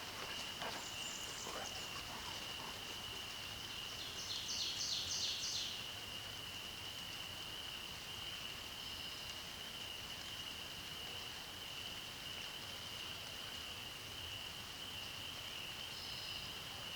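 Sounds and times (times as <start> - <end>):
songbird singing: 0.0 - 5.9.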